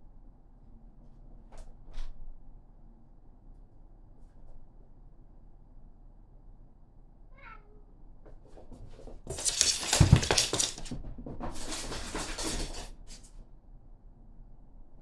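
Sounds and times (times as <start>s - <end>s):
cat meowing: 7.3s - 7.9s.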